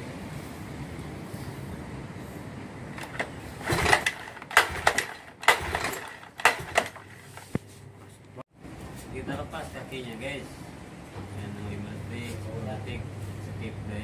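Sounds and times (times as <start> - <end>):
sharp metallic knocks and clanks: 3.0 - 7.5.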